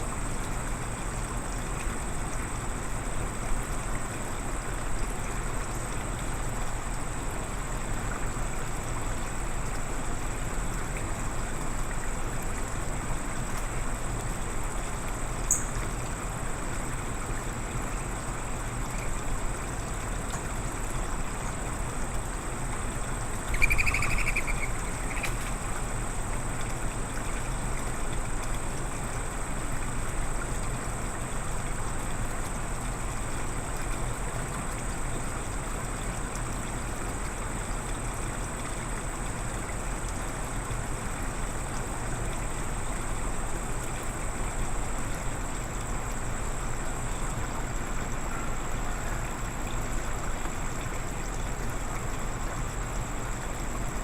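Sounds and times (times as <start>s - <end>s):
short bird call: 23.5s - 25.3s.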